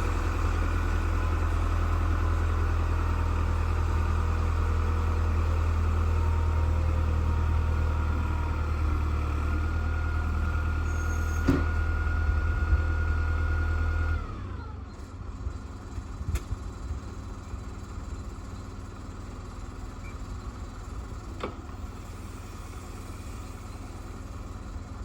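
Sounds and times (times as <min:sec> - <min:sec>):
engine whine: 0:00.0 - 0:18.8
tractor engine drone: 0:00.0 - 0:25.0.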